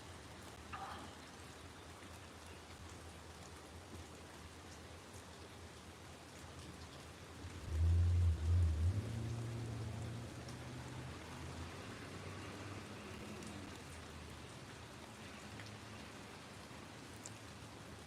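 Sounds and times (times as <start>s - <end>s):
rain falling: 0.0s - 18.0s
loud low rumble: 7.7s - 9.6s.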